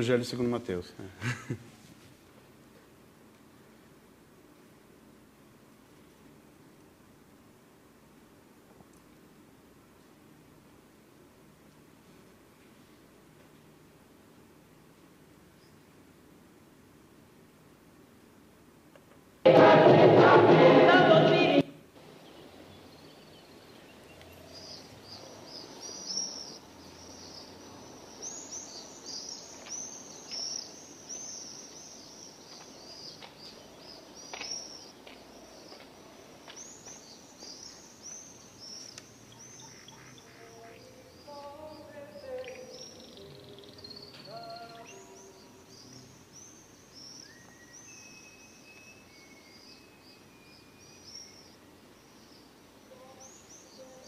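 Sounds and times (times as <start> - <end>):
faint outdoor hiss: 0.0 - 54.0
small birds chirping: 11.7 - 16.5, 22.0 - 54.0
lower bird calls: 22.0 - 54.0.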